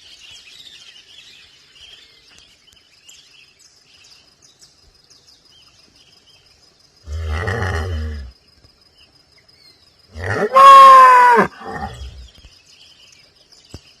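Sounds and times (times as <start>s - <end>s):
cow mooing: 10.2s - 12.1s.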